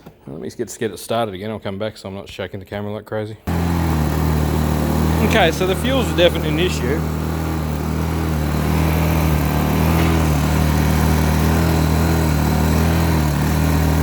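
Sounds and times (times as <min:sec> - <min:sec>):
generator engine surging: 0:03.5 - 0:14.0.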